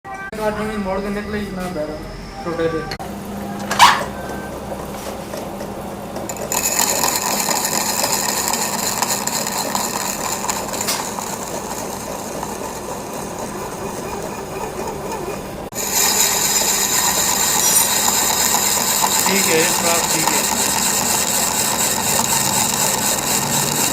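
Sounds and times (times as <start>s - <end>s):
lathe humming: 0.5s - 23.9s.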